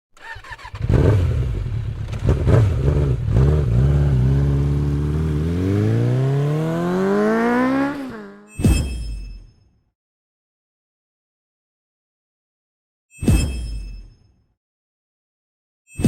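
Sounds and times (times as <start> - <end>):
motorcycle engine revving: 0.2 - 8.6.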